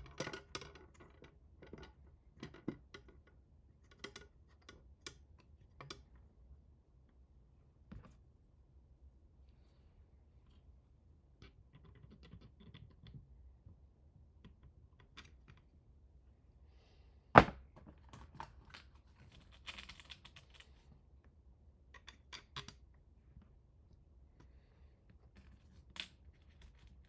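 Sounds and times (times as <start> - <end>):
small parts clicking and tapping: 11.4 - 13.8, 18.1 - 20.8.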